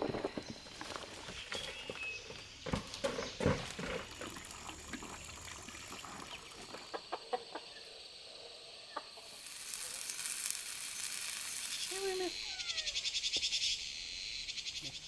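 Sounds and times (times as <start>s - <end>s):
chickens clucking: 6.7s - 7.8s.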